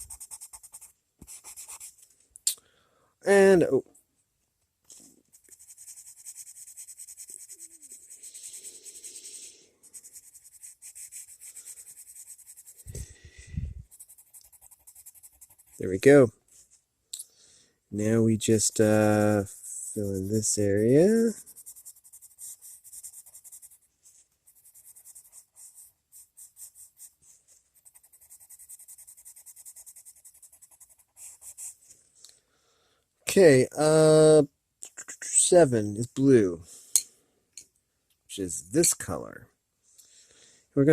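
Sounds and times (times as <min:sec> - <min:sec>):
pencil shading on paper: 0:00.0 - 0:02.0, 0:05.3 - 0:13.1, 0:13.8 - 0:15.8, 0:18.4 - 0:31.8.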